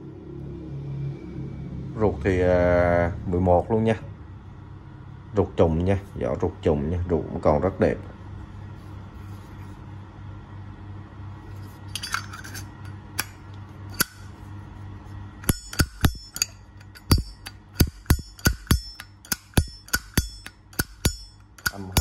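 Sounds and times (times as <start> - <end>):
small metallic clinks: 11.8 - 14.2, 15.4 - 22.0.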